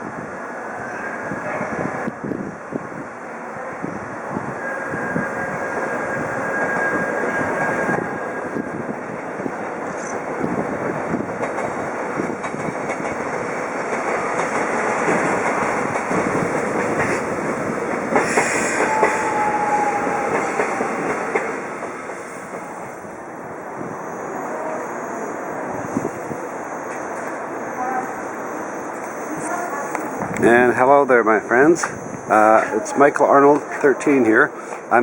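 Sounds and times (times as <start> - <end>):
train wheel squeal: 4.4 - 9.0, 18.2 - 21.4
train wheels clattering over rail joints: 11.1 - 19.4.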